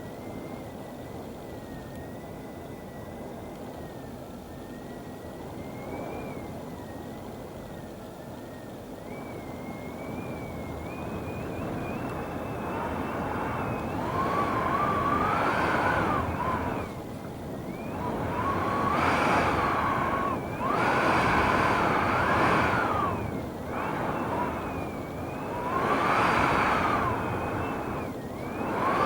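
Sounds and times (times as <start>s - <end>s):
wind whistling: 9.0s - 29.0s
strong wind gusting: 9.2s - 29.0s.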